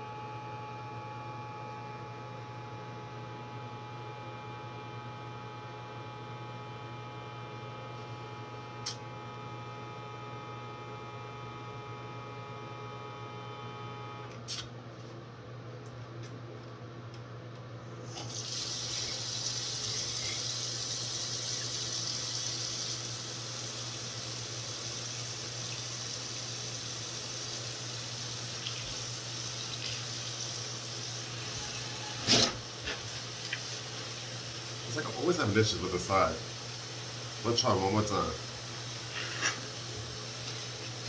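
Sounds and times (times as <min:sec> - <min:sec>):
steady hum: 0:18.8 - 0:41.0.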